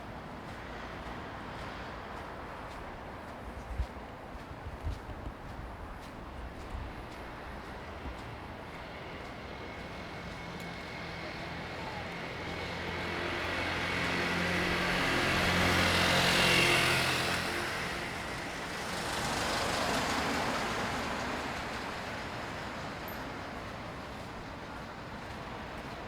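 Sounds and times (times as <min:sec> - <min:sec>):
vehicle passing by: 0:09.6 - 0:23.0.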